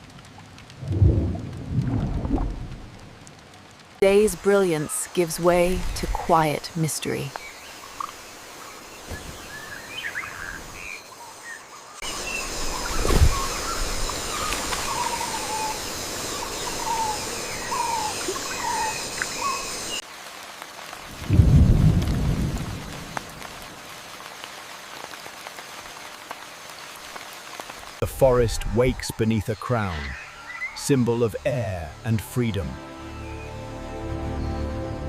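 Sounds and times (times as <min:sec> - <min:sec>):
steady rain: 0:00.0 - 0:35.0
low rumble of thunder: 0:00.6 - 0:03.2, 0:21.1 - 0:23.6
thunder clap: 0:00.7 - 0:03.2, 0:21.1 - 0:23.4
birds calling: 0:05.8 - 0:20.0, 0:28.3 - 0:35.0.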